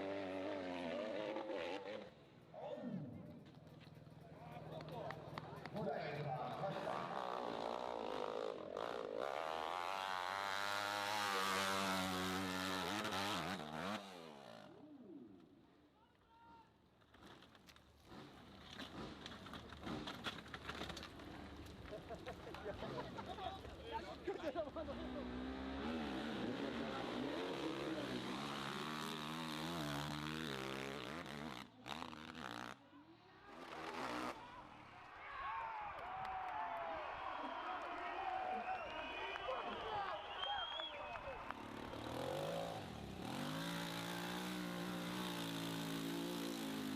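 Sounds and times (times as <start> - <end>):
motorcycle engine revving: 0.0 - 5.6, 6.4 - 14.8, 24.8 - 32.8, 33.5 - 34.4, 41.5 - 46.9.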